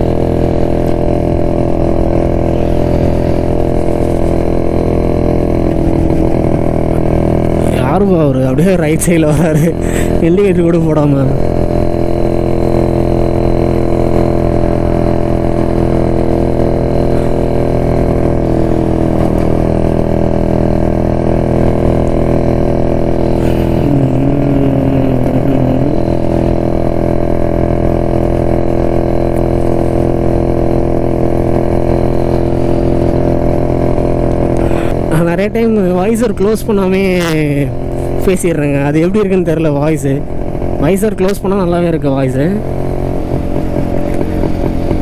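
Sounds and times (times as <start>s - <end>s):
two-stroke motorcycle engine running: 0.0s - 45.0s
wavering tone: 23.4s - 26.8s.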